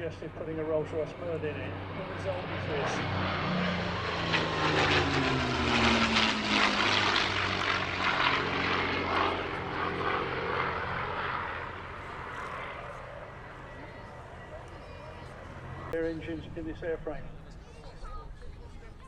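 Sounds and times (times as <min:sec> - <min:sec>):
propeller plane engine flying past: 0:00.0 - 0:19.0.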